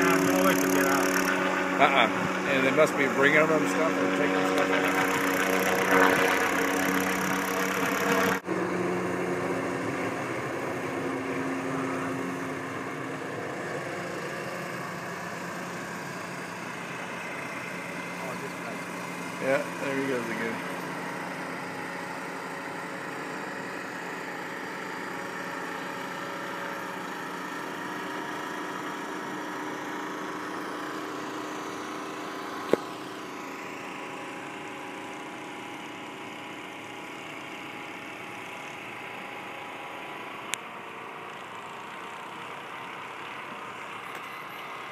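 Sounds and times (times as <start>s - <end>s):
engine running steadily: 0.0s - 44.9s.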